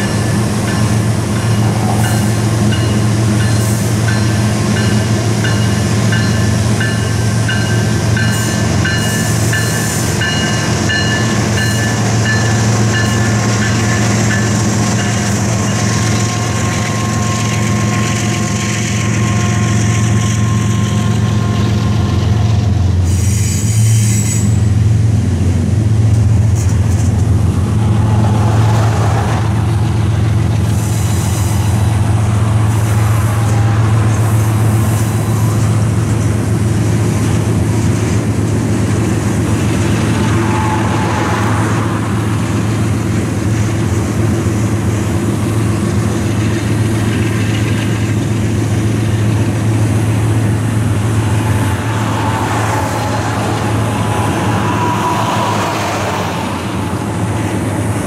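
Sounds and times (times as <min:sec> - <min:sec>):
freight train cars rumbling: 0:00.0 - 0:58.0
high wheel squeals: 0:05.6 - 0:24.7, 0:30.6 - 0:36.2, 0:39.4 - 0:43.6, 0:49.5 - 0:57.9.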